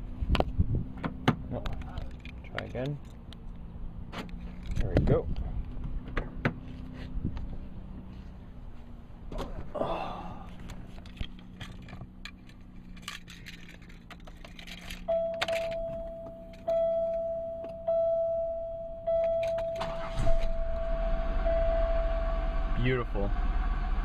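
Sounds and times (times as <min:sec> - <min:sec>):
car engine idling: 0:00.0 - 0:24.0
keys jingling: 0:11.0 - 0:17.2
car warning chime: 0:15.0 - 0:22.8.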